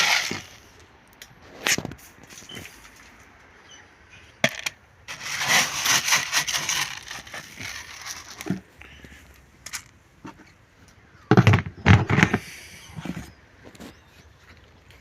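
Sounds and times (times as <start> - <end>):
small hard objects rattling: 0.0 - 0.6, 4.4 - 8.6.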